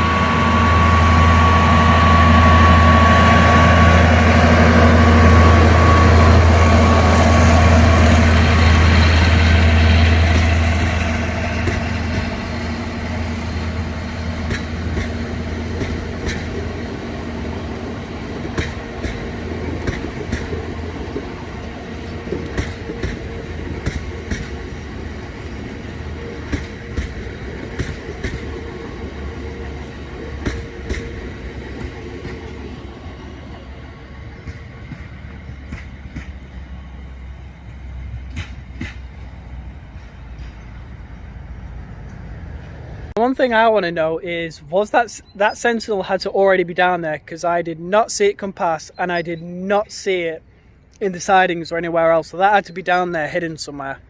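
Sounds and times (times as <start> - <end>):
locomotive engine passing: 0.0 - 54.0
train wheels clicking over rail joints: 1.8 - 43.1.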